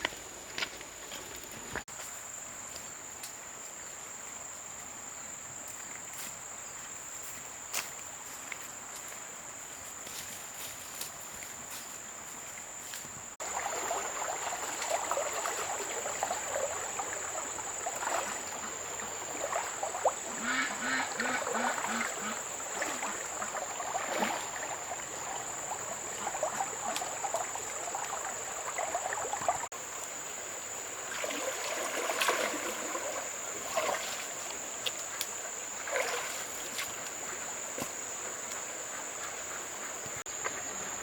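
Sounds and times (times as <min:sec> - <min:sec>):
high-pitched insect chorus: 0:09.4 - 0:41.0.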